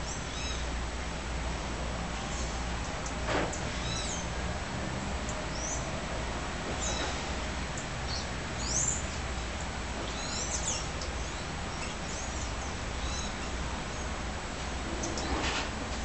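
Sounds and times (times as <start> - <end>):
birds chirping: 3.5 - 4.3, 5.3 - 5.9, 6.8 - 7.2, 7.8 - 9.3, 10.0 - 14.3, 14.9 - 15.4.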